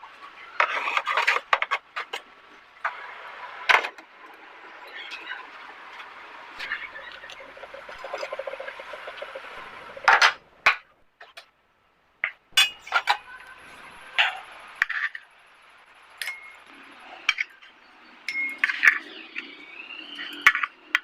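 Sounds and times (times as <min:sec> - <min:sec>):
kitchen utensils clinking: 0:12.6 - 0:15.1, 0:16.2 - 0:16.6.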